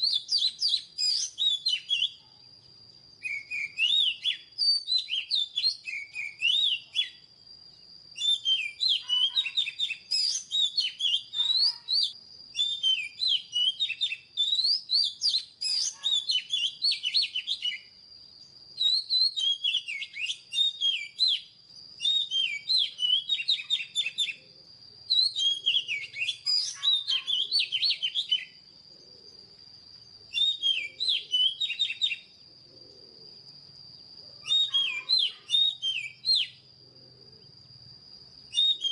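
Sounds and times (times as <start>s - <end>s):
bird singing whistled phrases: 0.0s - 2.3s, 3.2s - 7.3s, 8.2s - 24.4s, 25.1s - 28.6s, 30.3s - 32.3s, 34.4s - 36.6s, 38.5s - 38.9s.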